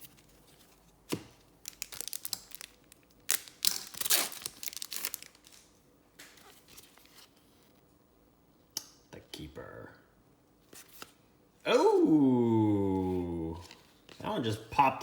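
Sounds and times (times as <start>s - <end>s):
card pack wrapper crinkling: 1.5s - 5.7s.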